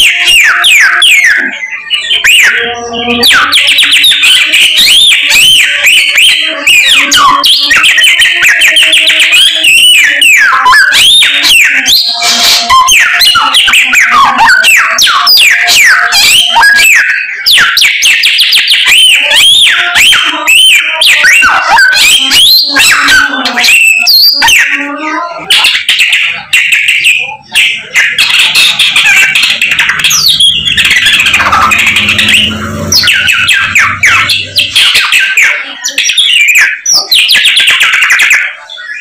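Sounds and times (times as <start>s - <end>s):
songbird singing: 25.4s - 39.0s.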